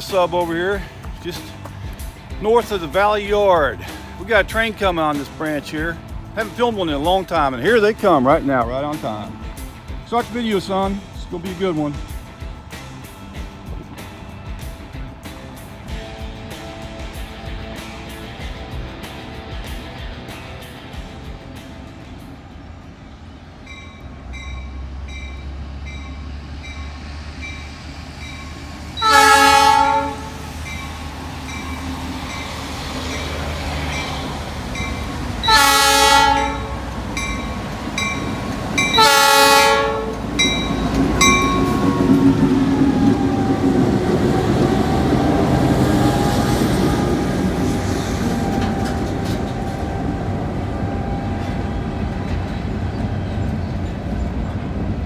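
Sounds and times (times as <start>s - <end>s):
diesel locomotive passing: 0.0s - 55.0s
loud train horn blasts: 29.0s - 30.9s, 35.3s - 37.5s, 38.3s - 43.2s, 45.4s - 52.4s
bell ringing evenly: 37.2s - 39.0s, 40.4s - 41.9s
train wheels clattering: 39.9s - 54.9s.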